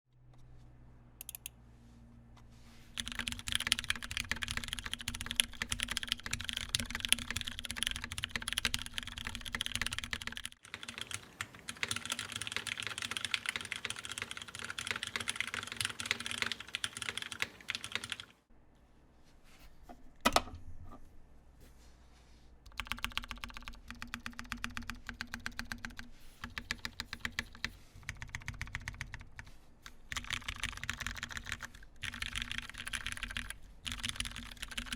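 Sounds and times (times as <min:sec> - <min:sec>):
mechanical keyboard typing: 0:01.2 - 0:01.5, 0:03.0 - 0:18.4, 0:22.7 - 0:34.9.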